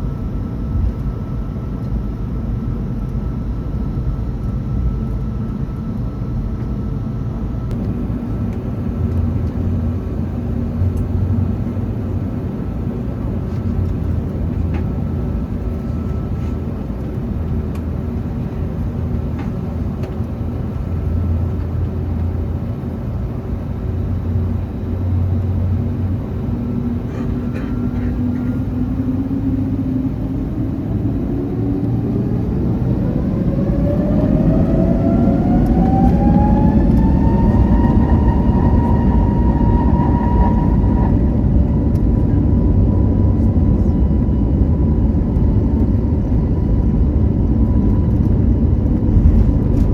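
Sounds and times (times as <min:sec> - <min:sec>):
jet engines spooling up whine: 0:00.0 - 0:49.9
low cabin rumble: 0:00.0 - 0:49.9.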